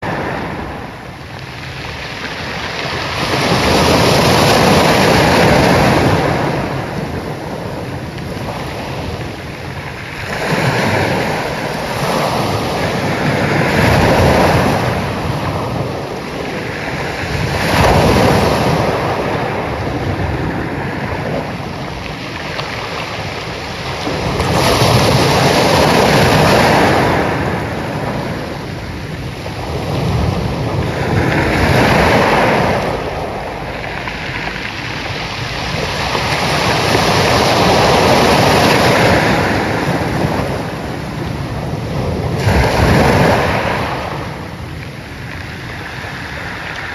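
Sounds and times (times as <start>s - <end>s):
ocean waves breaking on shore: 0.0s - 46.9s.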